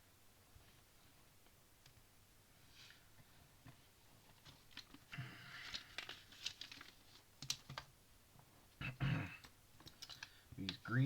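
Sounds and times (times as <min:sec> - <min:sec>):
plastic pieces clicking: 0:09.8 - 0:10.8.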